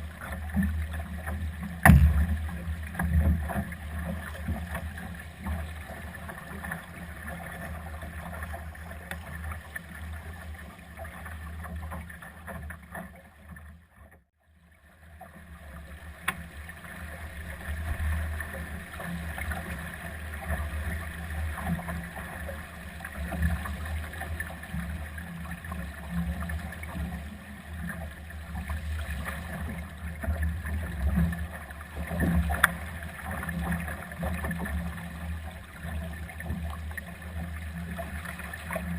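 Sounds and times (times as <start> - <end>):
water rushing past boat hull: 0.0 - 13.0
sharp knocks: 1.8 - 2.4.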